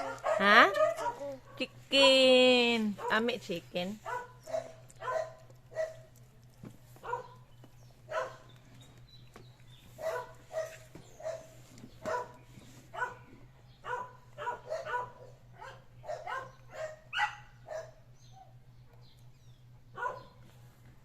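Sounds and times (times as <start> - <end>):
dog yapping: 0.0 - 1.6, 4.0 - 6.1, 7.0 - 7.4, 8.1 - 8.5, 10.0 - 13.2, 13.8 - 18.5, 20.0 - 20.4.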